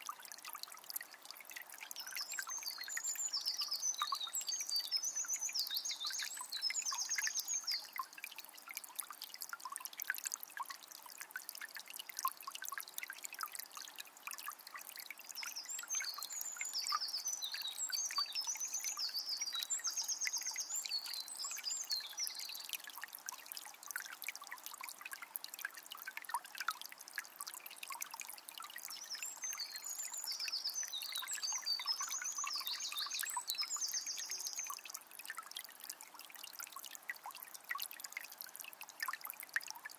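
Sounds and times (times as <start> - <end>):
songbird chirping: 1.8 - 8.1, 15.4 - 22.8, 28.8 - 35.0.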